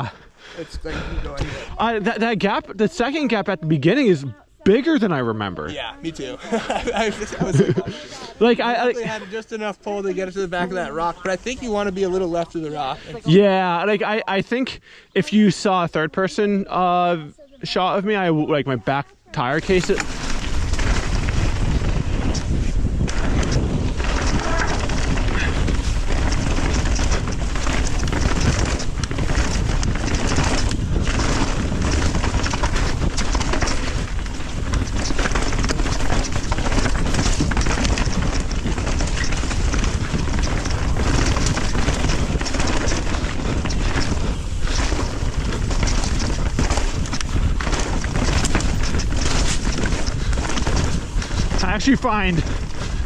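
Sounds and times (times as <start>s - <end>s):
mountain bike rattling and knocking: 0.0s - 14.4s, 19.3s - 53.0s
wind rushing over microphone: 19.6s - 53.0s.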